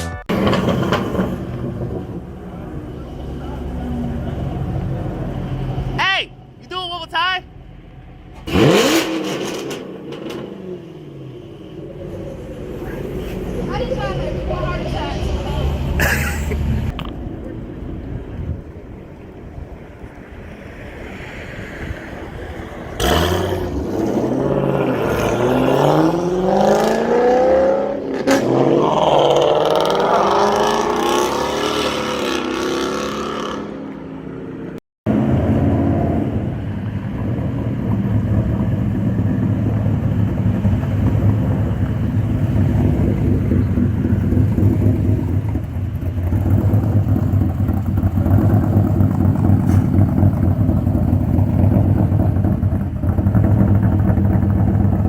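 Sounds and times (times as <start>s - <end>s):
car engine rumbling steadily: 0.0s - 26.6s, 34.1s - 55.0s
car engine revving: 7.6s - 17.0s, 20.9s - 55.0s.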